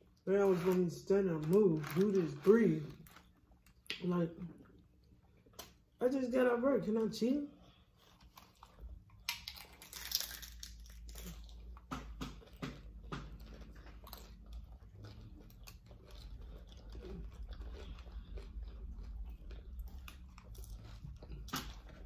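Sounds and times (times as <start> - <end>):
crunchy chewing and biting: 8.0 - 22.0.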